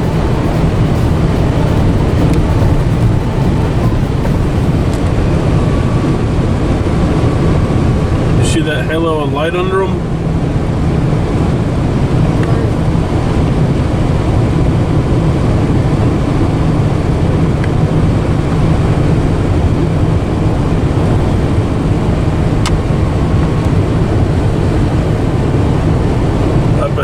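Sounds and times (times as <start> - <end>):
road and engine rumble in car: 0.0 - 27.0.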